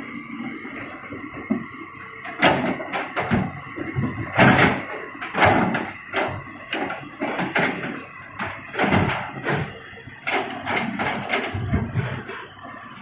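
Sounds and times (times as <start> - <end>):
stones thudding into truck bed: 8.8 - 9.7.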